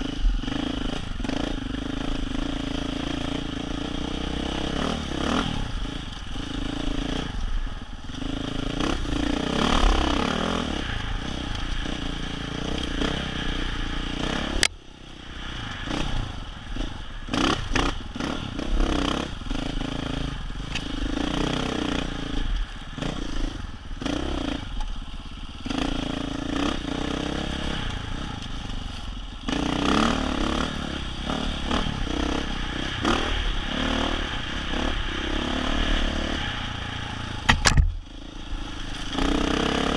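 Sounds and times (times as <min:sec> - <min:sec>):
dirt bike engine revving: 0:00.0 - 0:07.4, 0:08.2 - 0:14.7, 0:15.4 - 0:24.8, 0:25.6 - 0:39.9
sharp click: 0:37.5 - 0:38.0.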